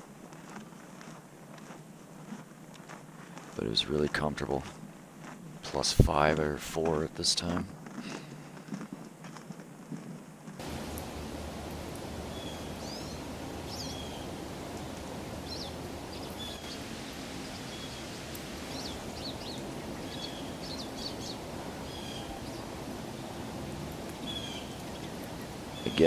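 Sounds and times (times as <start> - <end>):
outdoor background hiss: 0.0 - 26.0
songbirds chirping: 3.4 - 8.0, 10.6 - 26.0.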